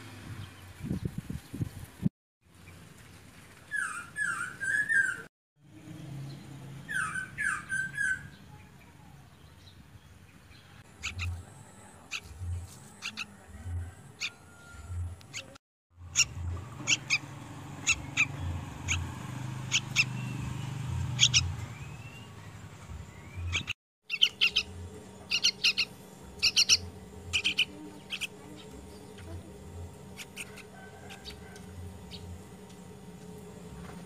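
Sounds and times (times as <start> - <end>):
fledgling songbird chirping: 6.3 - 8.6, 9.4 - 13.3, 15.3 - 32.5.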